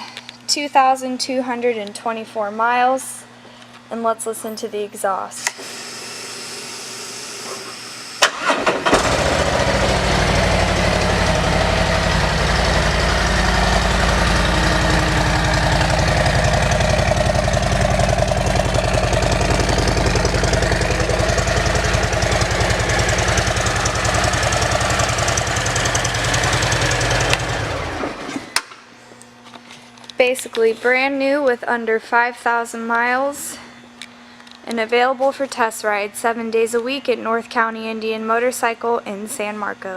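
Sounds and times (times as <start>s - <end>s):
motorcycle starter cranking: 8.2s - 13.1s, 13.8s - 28.6s
motorcycle engine idling: 9.0s - 28.2s.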